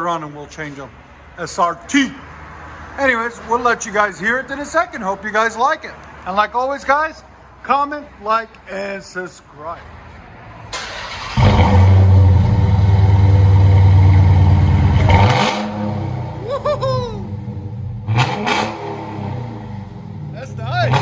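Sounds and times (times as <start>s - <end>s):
car engine starting and idling: 10.6s - 21.0s.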